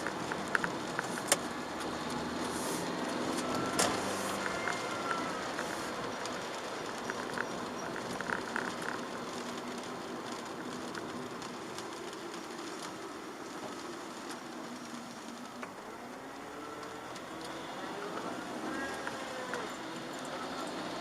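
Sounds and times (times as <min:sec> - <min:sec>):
rain on car: 0:00.0 - 0:21.0
tyres hissing on wet road: 0:00.0 - 0:21.0.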